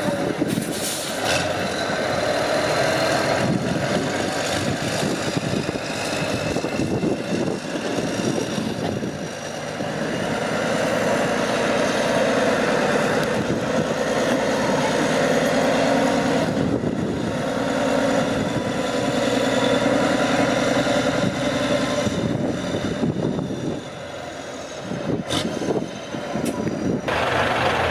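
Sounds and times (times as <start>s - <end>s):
truck engine revving under load: 0.0s - 27.9s.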